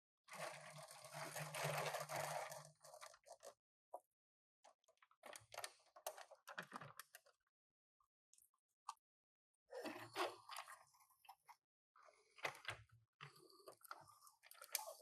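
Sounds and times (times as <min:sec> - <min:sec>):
light clicks and crackles: 0:12.4 - 0:15.0.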